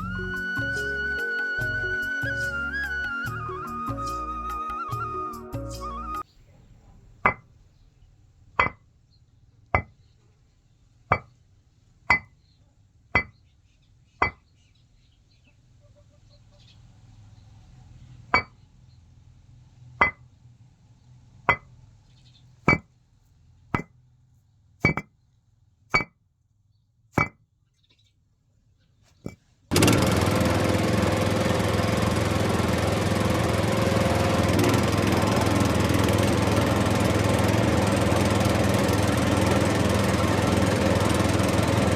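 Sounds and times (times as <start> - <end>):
small motor running: 29.7 - 41.9.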